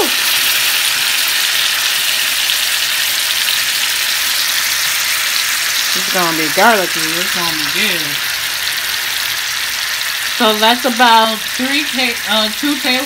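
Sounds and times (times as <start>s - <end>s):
garlic sizzling in a skillet: 0.0s - 13.0s.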